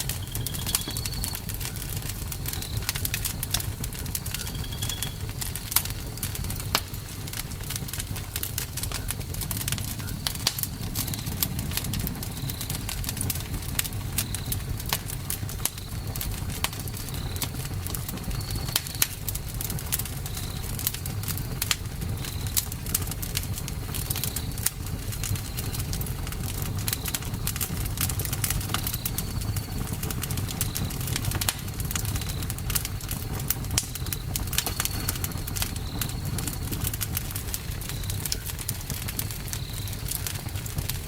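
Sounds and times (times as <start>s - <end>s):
low steady rumble: 0.0s - 18.4s
campfire crackling and popping: 0.0s - 41.0s.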